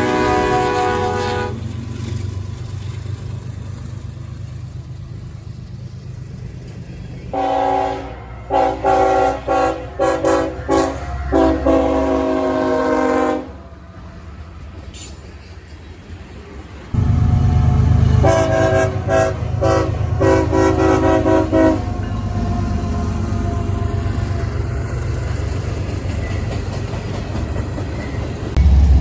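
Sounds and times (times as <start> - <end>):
locomotive air horn blasts: 0.0 - 1.7, 7.3 - 13.8, 17.0 - 24.4
diesel locomotive rumble: 0.0 - 29.0.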